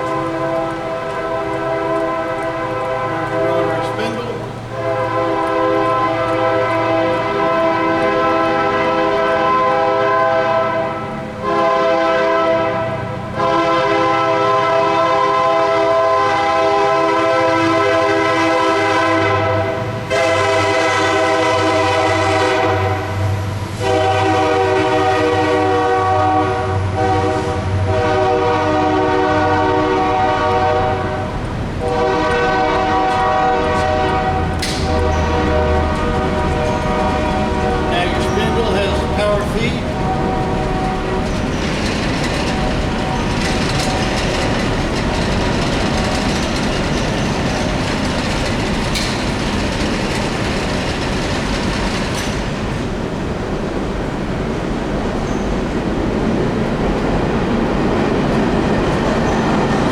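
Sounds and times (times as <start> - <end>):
locomotive air horn blasts: 0.0 - 44.8.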